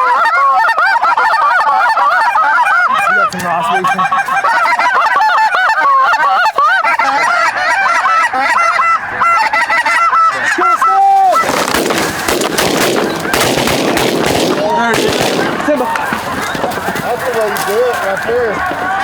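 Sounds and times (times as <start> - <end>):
flock of geese honking: 0.0 - 19.0
sharp cracks: 11.2 - 18.8
loud noise: 11.4 - 17.7.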